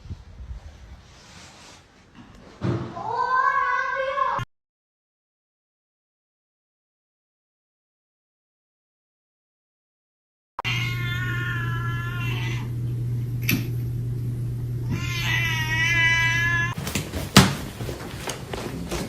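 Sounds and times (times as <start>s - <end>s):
knocks and thump: 2.2s - 3.0s, 16.8s - 19.0s
cat meowing: 10.6s - 12.7s, 14.8s - 16.8s
steady low hum: 10.8s - 19.0s.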